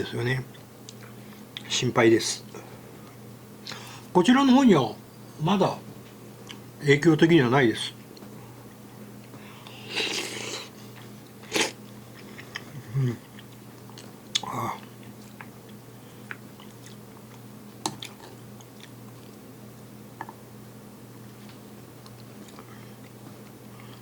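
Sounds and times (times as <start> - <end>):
person chewing: 9.6 - 19.4, 22.0 - 24.0.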